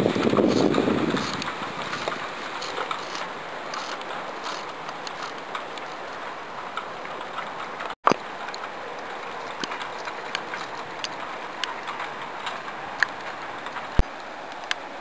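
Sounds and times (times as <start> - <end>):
steady hiss: 0.0 - 7.2
snow ticking on surfaces: 0.0 - 15.0.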